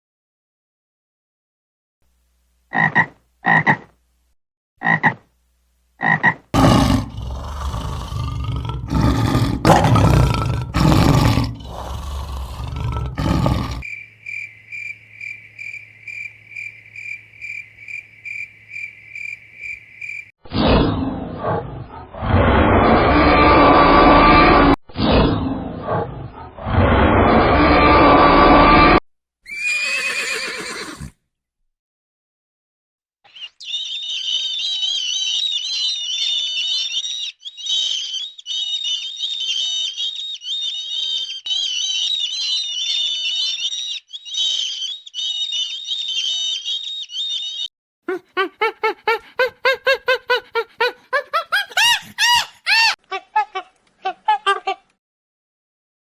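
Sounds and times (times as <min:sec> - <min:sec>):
loud deep animal call: 0:06.6 - 0:13.9
high-pitched bird chirping: 0:33.3 - 0:48.5.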